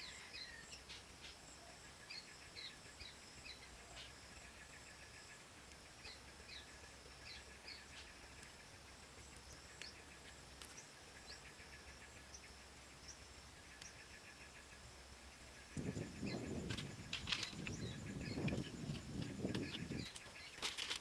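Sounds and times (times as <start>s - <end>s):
high insect drone: 0.0s - 21.0s
small birds chirping: 0.0s - 21.0s.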